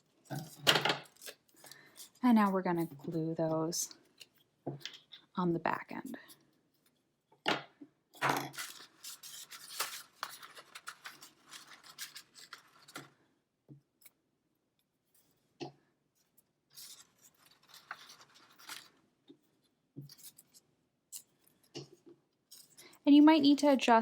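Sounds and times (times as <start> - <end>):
paper rustling: 0.3 - 3.3, 8.2 - 13.2, 16.7 - 19.0.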